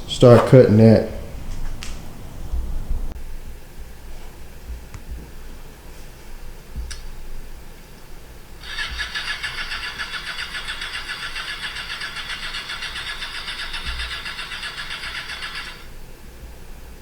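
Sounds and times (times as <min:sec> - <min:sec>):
reciprocating saw cutting: 0:08.6 - 0:15.9.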